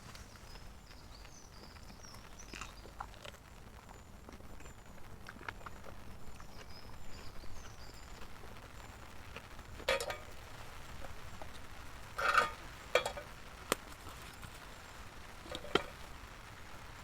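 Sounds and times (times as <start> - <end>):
camp cooking gear clicking: 9.2 - 14.8, 15.4 - 16.2.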